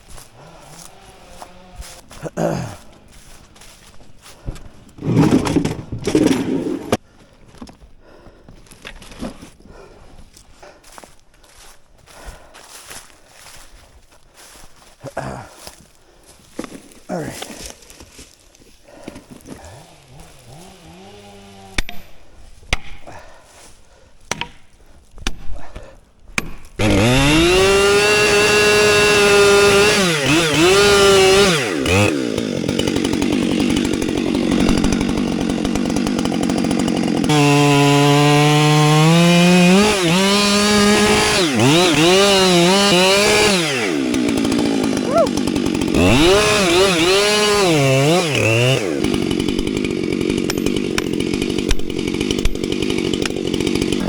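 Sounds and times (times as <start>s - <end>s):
chainsaw cutting wood: 0.0s - 7.0s, 18.9s - 23.4s, 24.2s - 25.8s, 26.4s - 54.0s.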